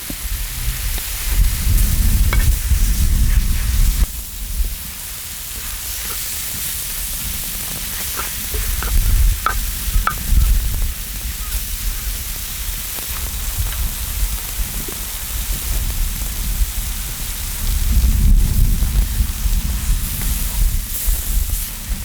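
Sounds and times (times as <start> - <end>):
food sizzling on a metal lid: 0.0 - 22.0
spatula clicking against lid: 8.0 - 10.4.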